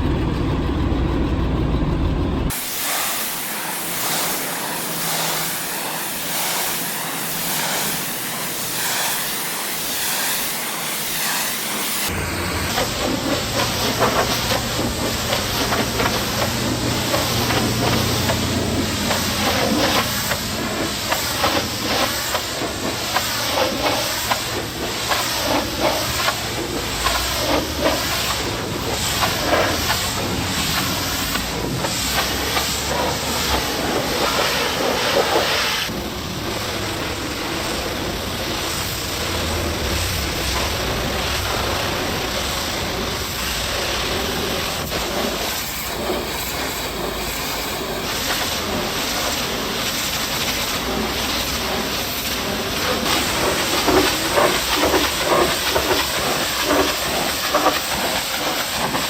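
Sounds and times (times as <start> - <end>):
pressure washer spraying: 2.5 - 59.0.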